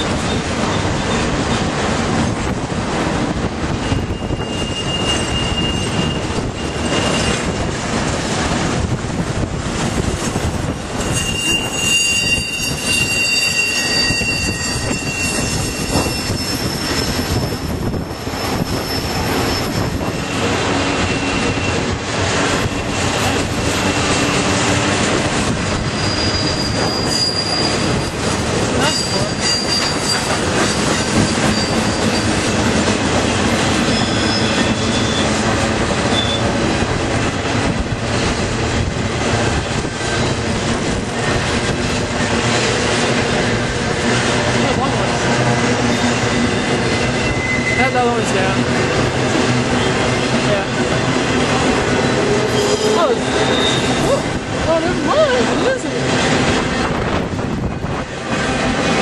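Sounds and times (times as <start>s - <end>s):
train wheels rumbling on rail: 0.0s - 59.0s
high-pitched wheel squeal: 3.7s - 7.7s, 11.0s - 21.9s, 25.8s - 32.6s, 33.8s - 35.4s, 36.1s - 36.5s, 45.9s - 48.1s, 52.4s - 54.4s.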